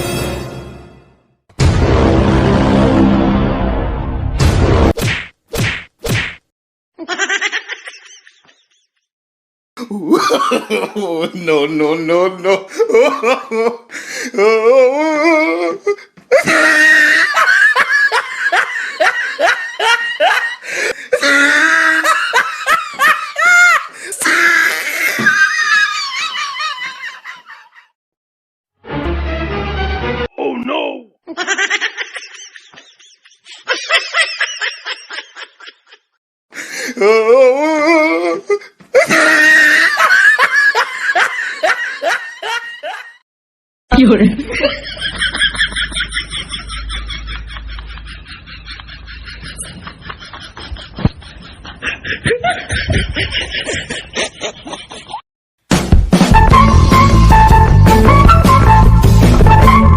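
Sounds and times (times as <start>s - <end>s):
people laughing hard: 7.0s - 8.8s, 10.0s - 27.9s, 31.3s - 36.2s, 38.0s - 43.2s, 44.4s - 55.2s.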